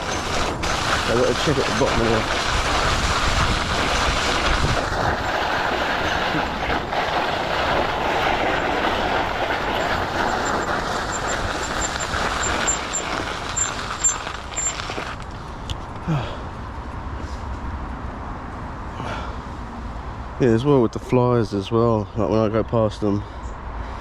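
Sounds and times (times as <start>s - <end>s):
wind on microphone: 0.0s - 15.2s
mountain bike tyre noise: 0.0s - 19.4s.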